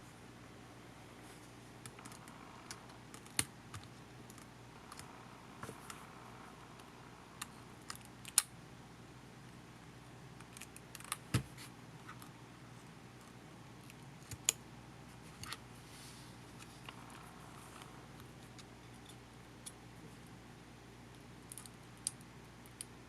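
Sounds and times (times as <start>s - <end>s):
small plastic and metal parts clicking: 21.4s - 22.9s.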